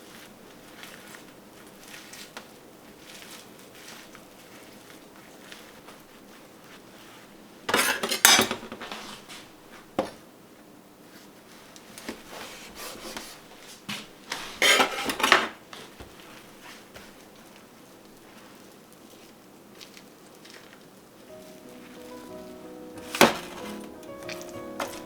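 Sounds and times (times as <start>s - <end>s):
dishes and cutlery clattering: 7.7s - 9.0s, 14.6s - 15.5s, 23.0s - 25.0s.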